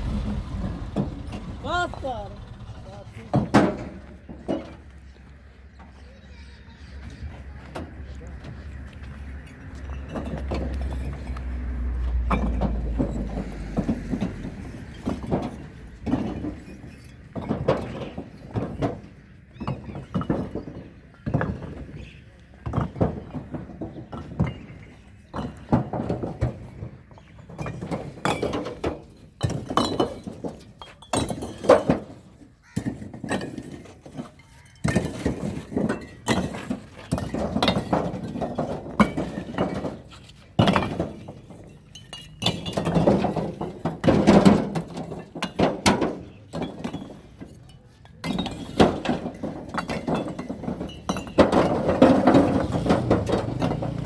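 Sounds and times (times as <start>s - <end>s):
bricks clinking together: 27.6s - 53.9s.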